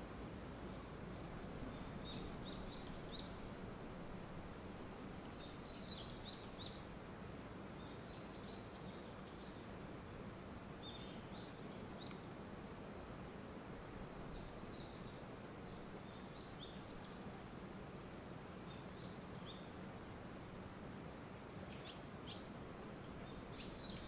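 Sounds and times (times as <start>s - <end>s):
faint outdoor hiss: 0.0s - 24.0s
songbird chirping: 0.6s - 3.5s, 5.2s - 6.9s, 7.8s - 9.7s, 10.8s - 12.3s, 14.0s - 17.3s, 18.6s - 19.8s, 21.6s - 24.0s.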